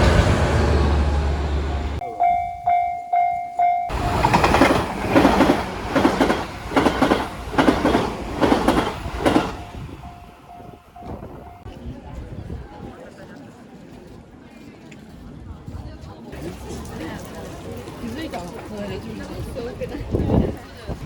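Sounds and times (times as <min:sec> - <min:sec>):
railway crossing bell ringing: 0:00.0 - 0:11.7
train wheels clacking on rails: 0:02.6 - 0:11.7.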